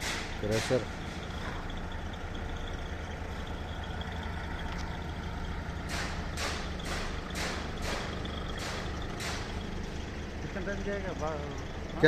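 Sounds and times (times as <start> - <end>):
diesel machinery rumbling: 0.0 - 12.0.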